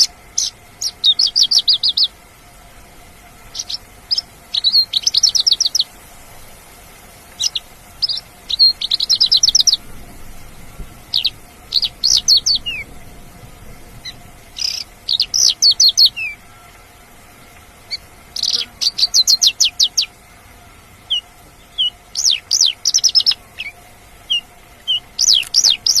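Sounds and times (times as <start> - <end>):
lark singing high chirps: 0.0 - 2.2, 3.4 - 6.0, 7.3 - 9.9, 11.0 - 13.0, 14.0 - 16.7, 17.8 - 20.2, 21.0 - 26.0.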